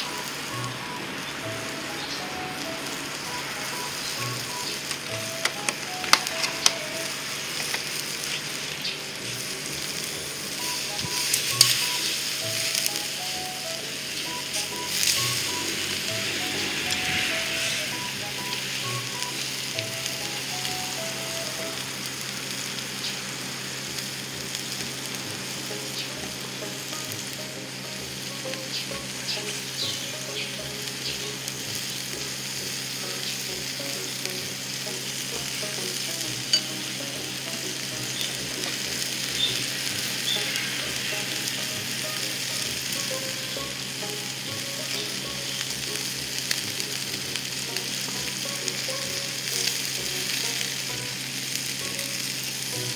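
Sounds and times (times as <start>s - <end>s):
meat sizzling on a grill: 0.0s - 52.9s.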